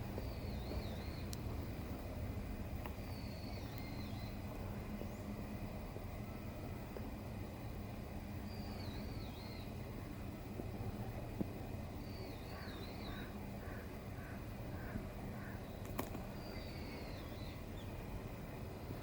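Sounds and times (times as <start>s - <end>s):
birds calling: 0.0s - 5.4s, 8.4s - 10.2s, 11.9s - 18.1s
high warbling bird song: 0.0s - 6.9s, 8.3s - 11.1s, 11.8s - 19.0s
low background hum: 0.0s - 19.0s.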